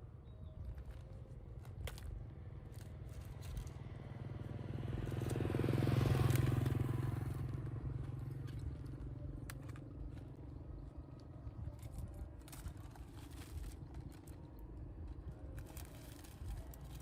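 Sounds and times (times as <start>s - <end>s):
vehicle passing by: 3.1s - 9.4s.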